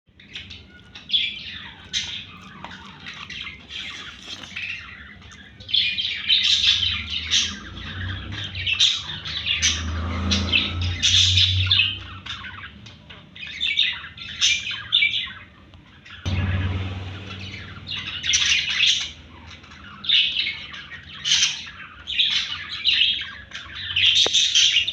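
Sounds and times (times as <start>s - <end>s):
parrots chirping and squawking: 0.2s - 16.2s
low rumble: 16.3s - 20.5s.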